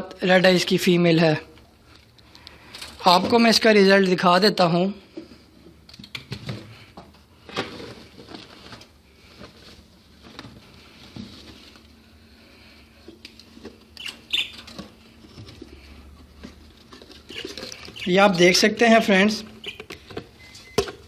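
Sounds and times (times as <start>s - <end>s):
budgies scratching and tapping: 14.0s - 14.9s, 16.9s - 18.2s, 19.6s - 20.1s.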